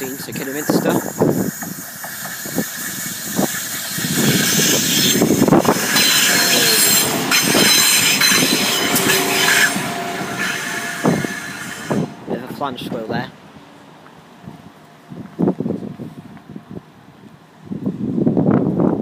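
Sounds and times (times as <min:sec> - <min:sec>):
wheel flanges squealing: 0:00.0 - 0:12.2
train wheels clicking over rail joints: 0:00.0 - 0:13.1.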